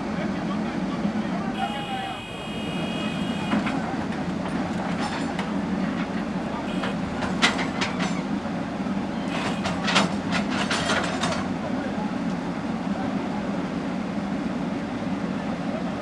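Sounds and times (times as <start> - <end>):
metallic clanks and knocks: 3.5 - 8.4, 9.3 - 11.5.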